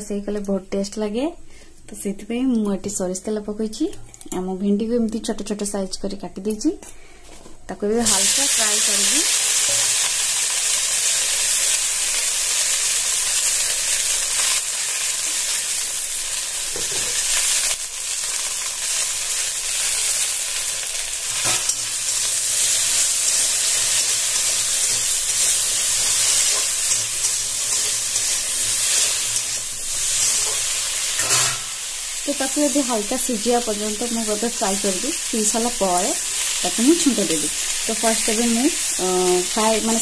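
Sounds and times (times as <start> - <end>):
vegetables sizzling in hot oil: 8.0 - 40.0.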